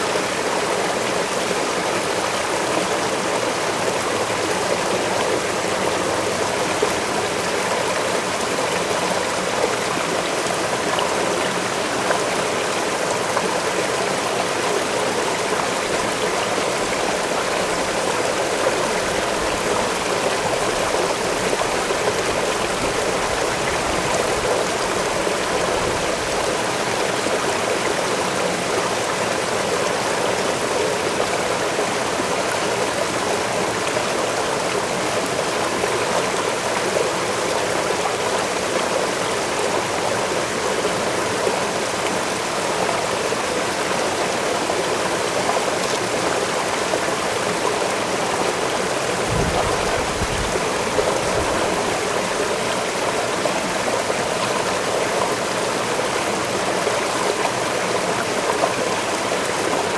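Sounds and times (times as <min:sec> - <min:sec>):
waterfall pouring: 0:48.8 - 0:53.3.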